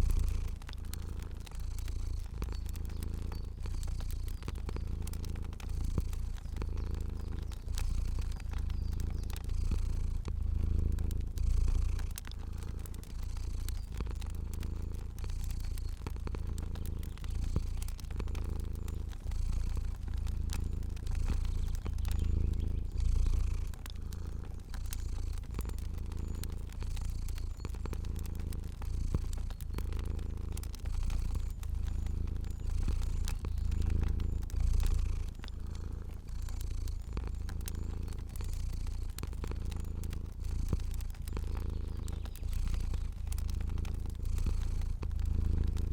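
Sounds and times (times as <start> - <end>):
cat purring: 0.0 - 45.9
crackling fire pops: 0.0 - 45.9.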